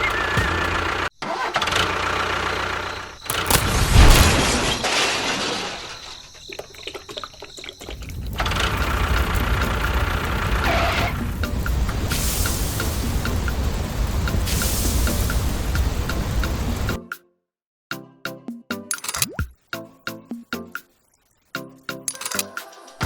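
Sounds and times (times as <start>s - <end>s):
engine running: 0.0s - 4.2s, 8.3s - 14.4s
scattered clicks: 3.2s - 3.8s, 18.9s - 19.4s, 22.1s - 22.7s.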